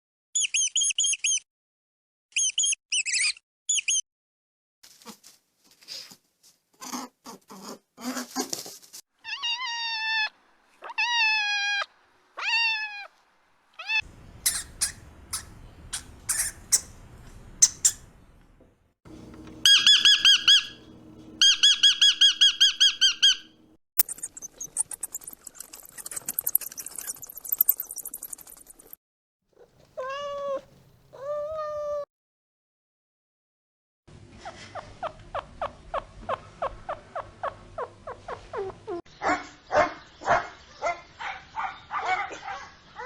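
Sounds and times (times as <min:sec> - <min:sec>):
small animal squeaky calls: 0:00.4 - 0:01.4, 0:02.3 - 0:04.0, 0:13.8 - 0:17.0, 0:17.6 - 0:18.1, 0:19.6 - 0:20.8, 0:21.4 - 0:29.0, 0:29.6 - 0:32.0.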